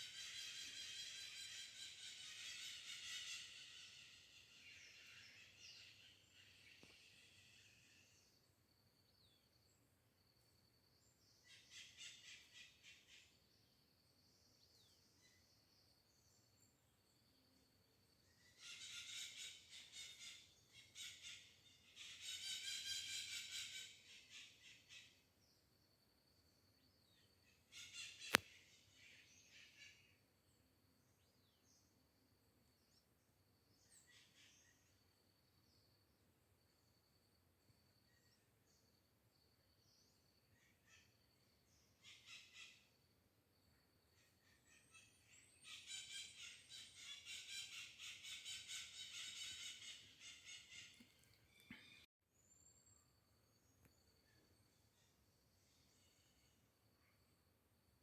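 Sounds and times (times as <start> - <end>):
birds singing trilled phrases: 41.8 - 42.8, 44.4 - 52.1.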